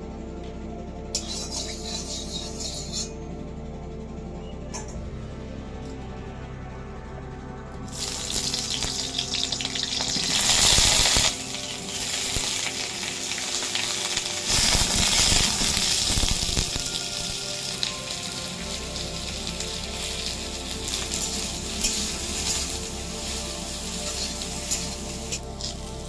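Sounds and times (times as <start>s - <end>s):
background music: 0.0s - 26.0s
food sizzling in hot oil: 7.9s - 26.0s.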